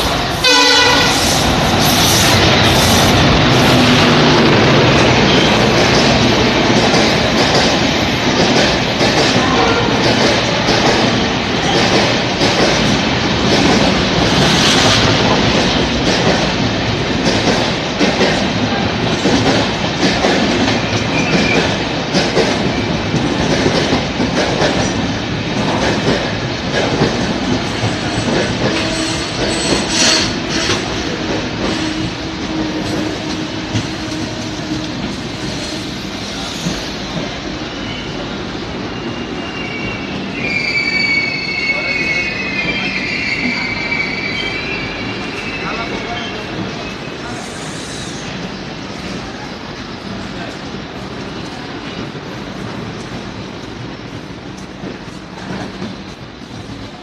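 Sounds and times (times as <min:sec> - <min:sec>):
train wheels clattering: 0:00.0 - 0:37.4
high ringing squeal: 0:38.9 - 0:46.4.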